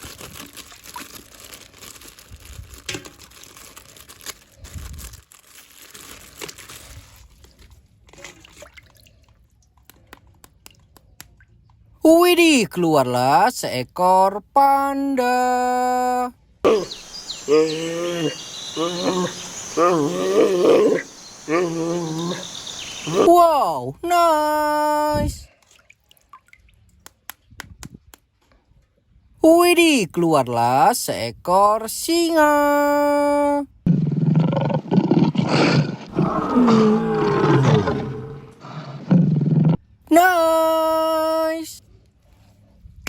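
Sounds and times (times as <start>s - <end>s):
lion roaring: 16.7s - 23.3s, 33.9s - 39.8s
panda drawn-out calls: 16.7s - 23.3s.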